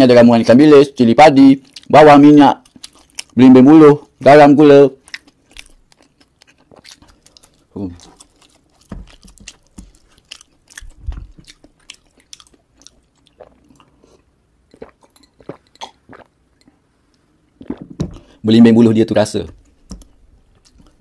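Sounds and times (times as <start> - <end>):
person chewing: 1.6 - 3.4, 4.9 - 18.4, 19.5 - 21.0.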